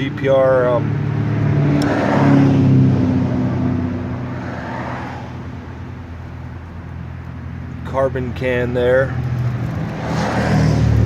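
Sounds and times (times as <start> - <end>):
vehicle passing by: 0.7 - 6.9, 9.0 - 11.0.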